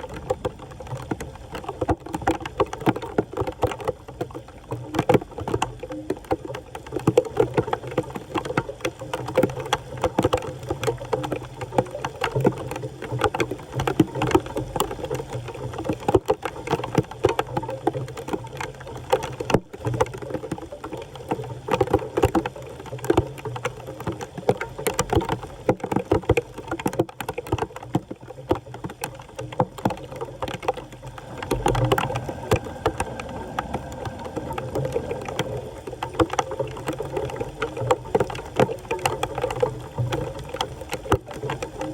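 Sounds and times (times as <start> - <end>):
water splashing and sloshing: 26.6 - 41.9.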